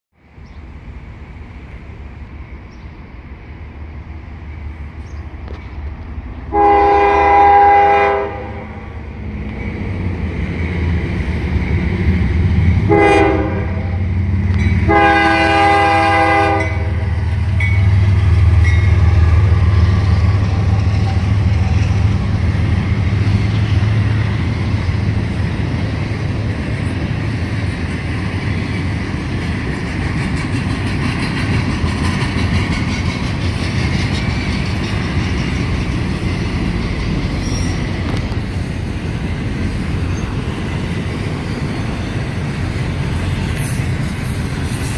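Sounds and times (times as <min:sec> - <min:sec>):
train cars rolling: 0:00.3 - 0:44.9
locomotive engine rumble: 0:00.4 - 0:44.9
locomotive horn blasts: 0:06.5 - 0:08.8, 0:12.8 - 0:14.0, 0:14.8 - 0:17.1.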